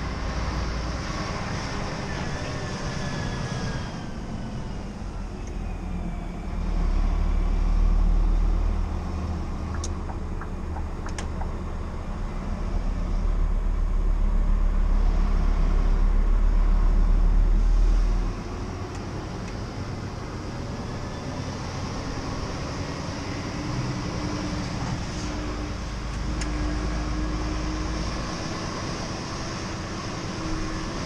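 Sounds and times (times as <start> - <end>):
truck diesel engine droning: 0.0 - 31.0
sharp clicks: 9.7 - 11.5.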